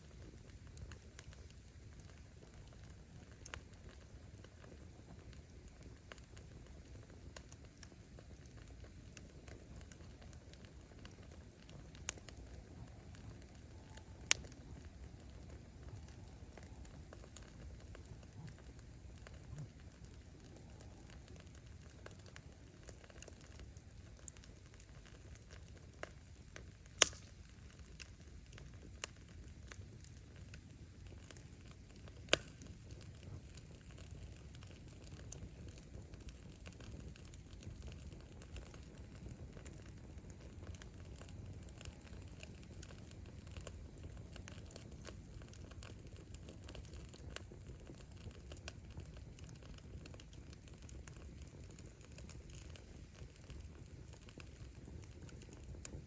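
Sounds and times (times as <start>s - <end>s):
faint crackling: 0.0s - 56.0s
low rumble of flame: 0.0s - 56.0s
wood popping: 26.9s - 27.6s.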